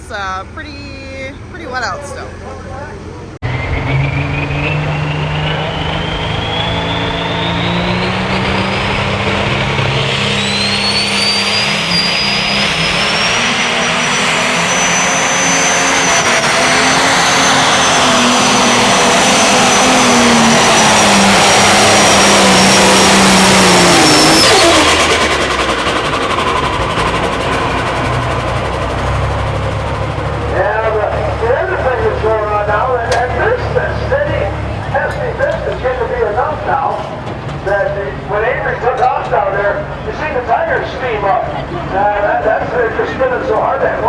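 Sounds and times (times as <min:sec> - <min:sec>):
diesel engine at full throttle: 0:00.0 - 0:44.0
high turbo whine: 0:00.0 - 0:44.0.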